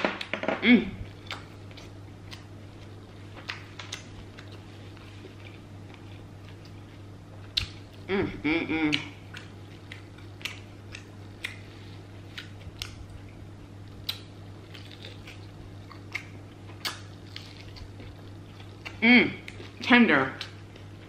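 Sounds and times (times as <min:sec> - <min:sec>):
low steady hum: 0:00.0 - 0:21.0
chewing with wet mouth sounds: 0:01.1 - 0:08.0, 0:08.9 - 0:21.0.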